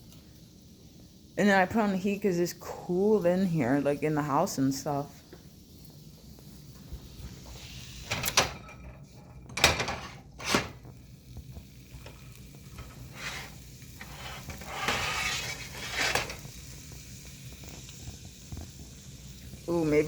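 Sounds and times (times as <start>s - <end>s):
sausages sizzling in a frying pan: 0.0s - 20.0s
pan and utensils clattering: 8.0s - 10.9s, 12.0s - 16.5s.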